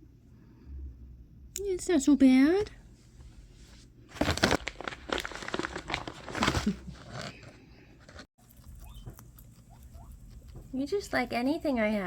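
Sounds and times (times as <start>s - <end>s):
crinkling and rustling: 4.0s - 8.3s.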